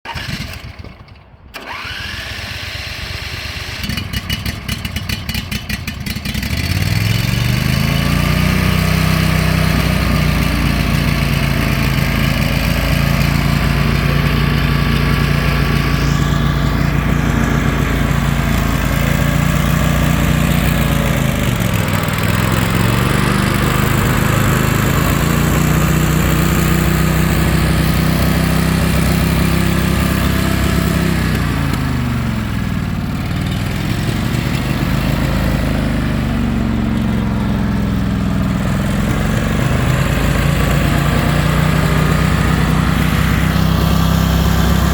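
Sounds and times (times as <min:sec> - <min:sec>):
lawn tractor engine running: 0:00.0 - 0:44.9
electric starter cranking: 0:00.1 - 0:32.3.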